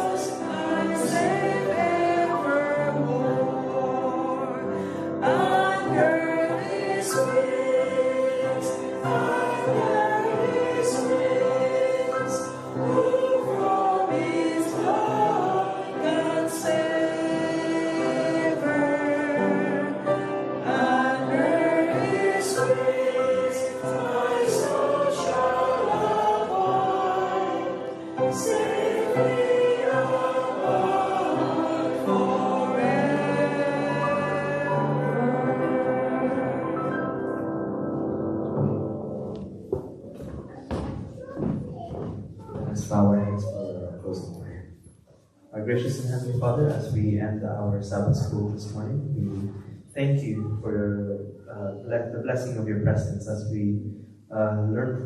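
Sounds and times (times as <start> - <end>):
choir singing a hymn: 0.0 - 39.6.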